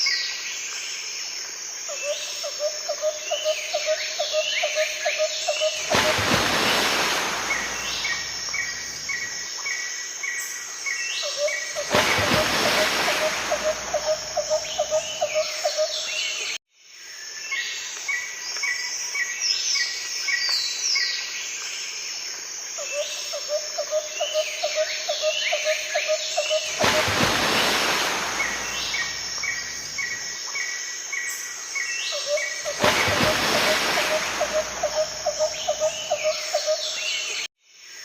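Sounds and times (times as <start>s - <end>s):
birds chirping: 5.8s - 9.4s.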